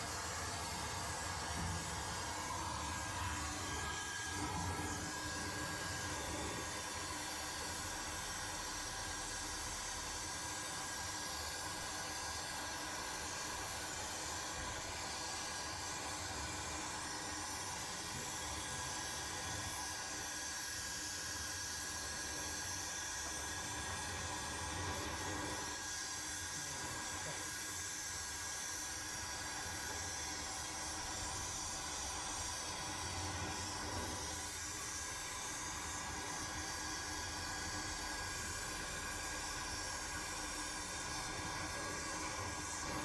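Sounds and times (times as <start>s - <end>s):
faint steady whine: 28.3s - 43.0s.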